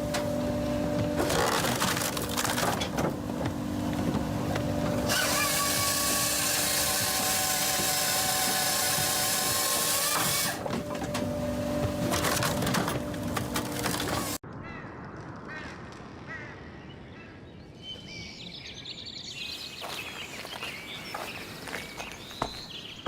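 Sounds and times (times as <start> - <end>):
machine hum: 0.0 - 14.4
saw cutting through log: 0.0 - 14.4.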